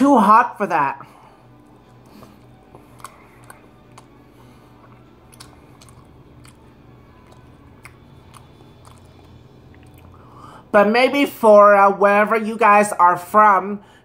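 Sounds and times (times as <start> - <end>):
faint low hum: 0.0 - 14.0
person chewing food: 1.4 - 10.4.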